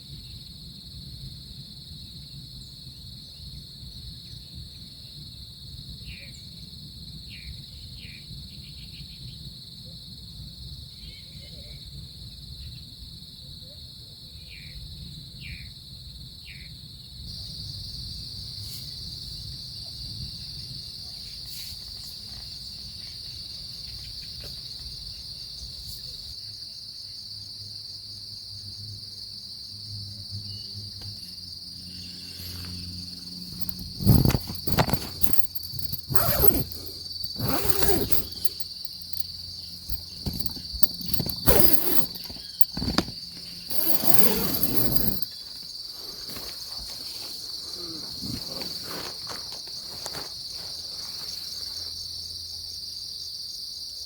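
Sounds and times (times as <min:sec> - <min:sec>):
insects chirping: 0:16.4 - 0:54.0
loud rustles and knocks: 0:33.5 - 0:45.3.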